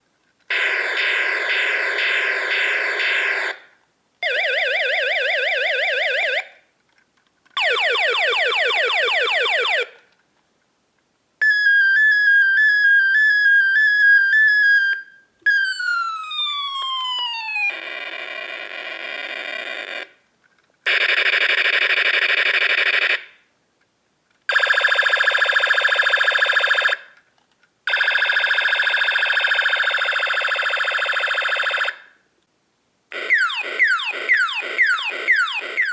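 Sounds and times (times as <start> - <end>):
toy ray gun sound effects: 0.5 - 3.6.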